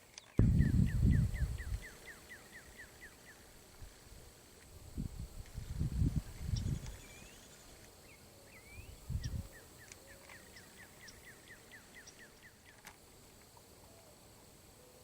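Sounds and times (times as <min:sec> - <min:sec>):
low thuds: 0:00.4 - 0:01.8
bird chirping: 0:06.4 - 0:12.8.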